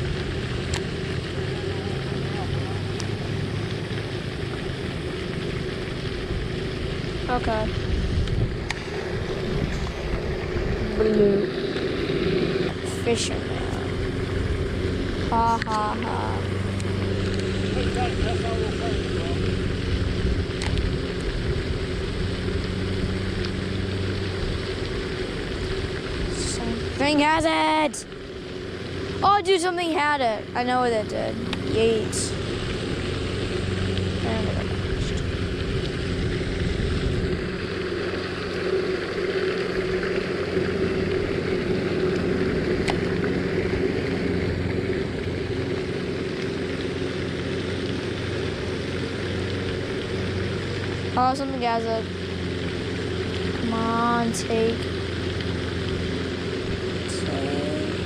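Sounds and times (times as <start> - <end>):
steady motor drone: 0.0 - 58.0.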